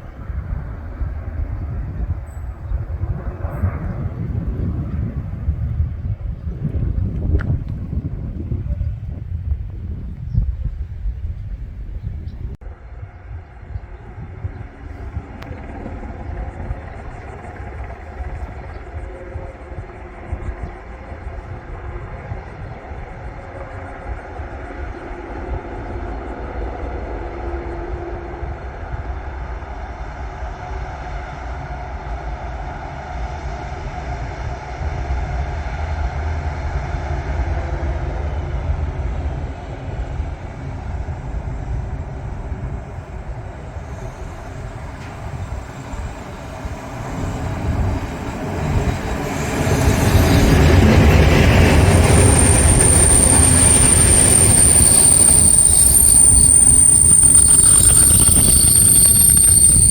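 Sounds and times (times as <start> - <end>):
passenger train rumbling on rails: 44.8 - 54.5
high-pitched wheel squeal: 50.2 - 59.9.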